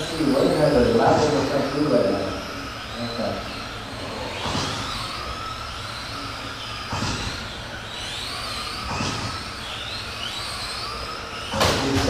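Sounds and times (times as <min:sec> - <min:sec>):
electric motors whining: 0:00.0 - 0:12.0.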